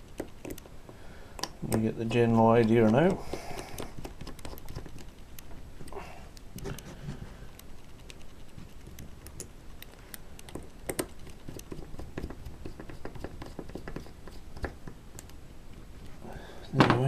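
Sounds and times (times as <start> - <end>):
small screws and nuts clicking: 1.4 - 6.8, 7.5 - 15.4.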